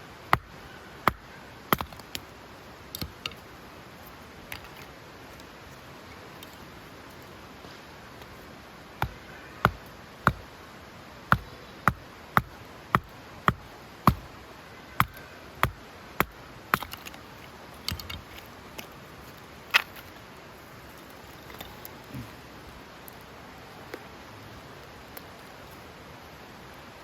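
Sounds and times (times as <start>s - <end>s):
chopping strikes: 9.0s - 10.4s, 11.3s - 14.3s, 15.0s - 17.2s.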